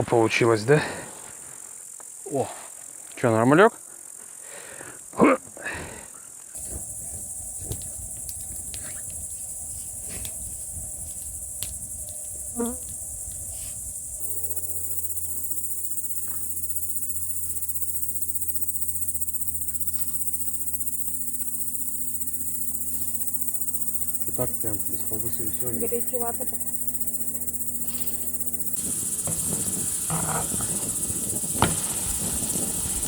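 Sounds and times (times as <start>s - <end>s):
insects chirring: 0.1s - 5.2s, 6.2s - 33.0s.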